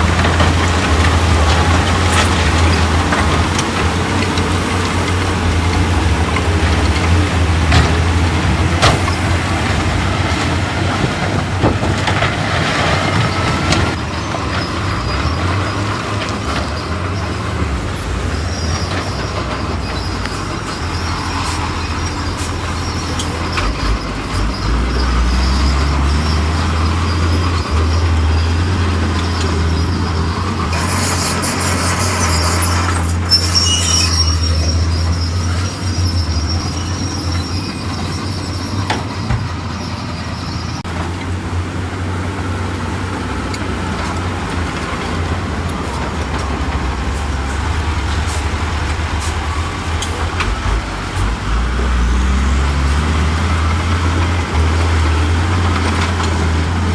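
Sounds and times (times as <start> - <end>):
diesel machinery engine rumble: 0.0 - 56.9
high metallic squeal: 18.3 - 40.8.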